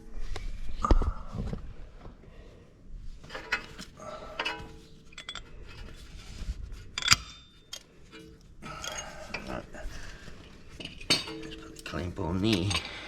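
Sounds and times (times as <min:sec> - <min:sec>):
metal tools clinking: 0:03.3 - 0:06.1, 0:06.9 - 0:13.0.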